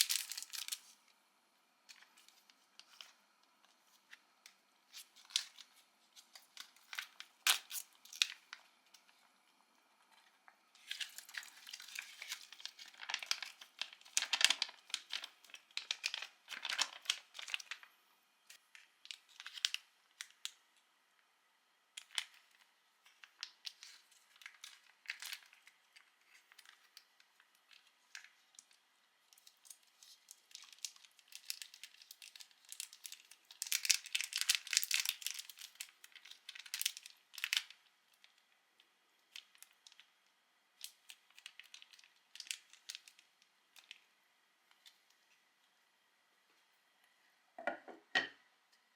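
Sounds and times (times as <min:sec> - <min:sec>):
food packaging torn and crinkled: 0:00.0 - 0:01.0, 0:01.8 - 0:09.1, 0:10.1 - 0:17.9, 0:18.5 - 0:20.6, 0:22.0 - 0:38.5, 0:39.2 - 0:40.1, 0:40.8 - 0:44.1.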